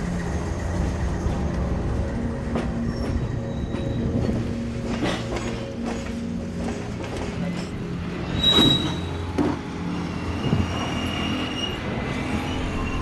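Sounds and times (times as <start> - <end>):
freight train rumbling with clanks: 0.0 - 13.0
train wheel squeal: 2.5 - 13.0.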